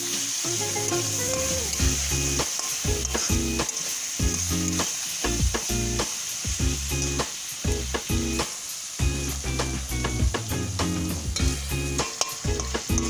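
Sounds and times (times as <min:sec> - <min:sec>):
food sizzling in hot oil: 0:00.0 - 0:13.0
utensil clicking in a pan: 0:00.9 - 0:06.2, 0:11.4 - 0:13.0.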